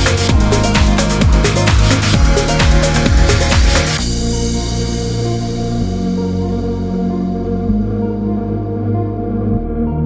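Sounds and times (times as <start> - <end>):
electronic dance music: 0.0 - 6.1
pitch-dropping bass drum: 0.0 - 7.3.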